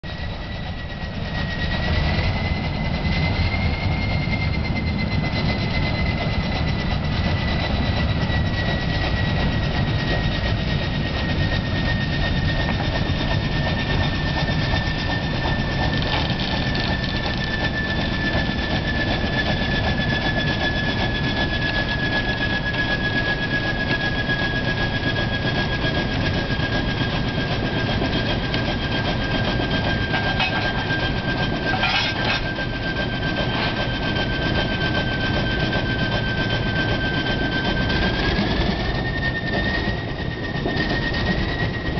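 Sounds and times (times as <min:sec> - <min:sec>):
high whine: 0:00.1 - 0:35.6
locomotive engine rumble: 0:00.1 - 0:41.9.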